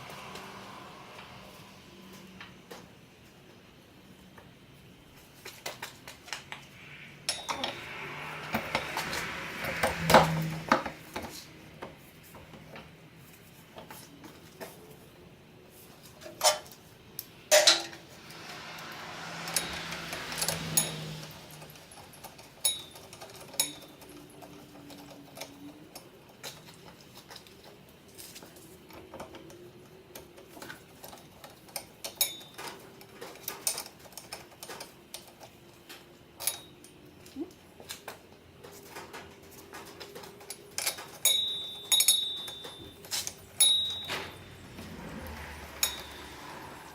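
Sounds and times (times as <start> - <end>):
power tool whirring hiss: 18.0 - 21.8
metal tools clinking: 40.8 - 44.7, 45.3 - 46.7.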